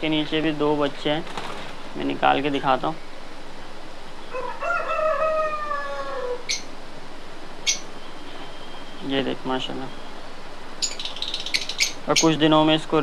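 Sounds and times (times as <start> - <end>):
bird calling: 4.1 - 6.8, 7.6 - 13.0.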